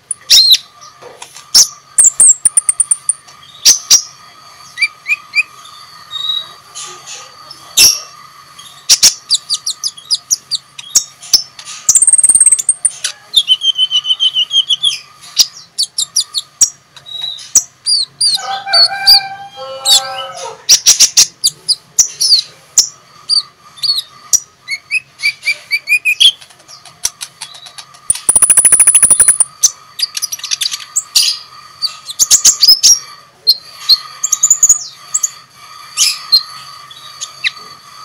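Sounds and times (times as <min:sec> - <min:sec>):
bird chirps and trills: 0:00.0 - 0:38.0
buzzy bird trill: 0:01.6 - 0:37.6
faint steady tone: 0:28.1 - 0:29.6.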